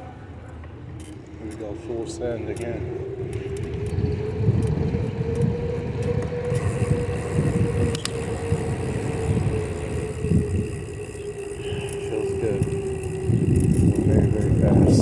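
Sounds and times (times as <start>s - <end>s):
bicycle tyres rolling on pavement: 0.0s - 15.0s
steady hum: 0.0s - 15.0s
wind rushing over microphone: 0.8s - 15.0s.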